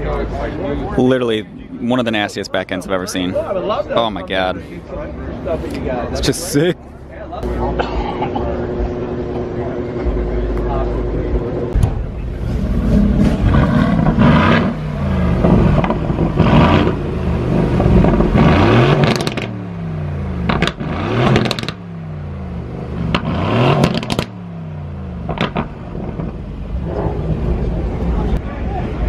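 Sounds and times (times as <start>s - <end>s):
car engine revving: 8.4s - 28.4s.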